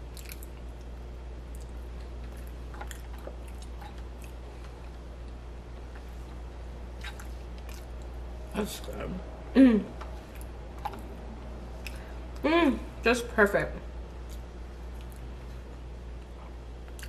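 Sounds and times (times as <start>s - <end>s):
person chewing soft food: 0.0s - 8.4s, 10.1s - 12.4s, 14.1s - 17.0s
steady low hum: 0.0s - 17.0s.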